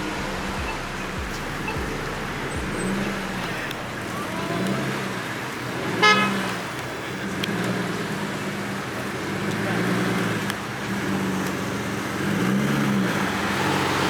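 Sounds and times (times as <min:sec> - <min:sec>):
car horn toot: 0:00.0 - 0:06.8
car traffic rumble: 0:00.0 - 0:14.0.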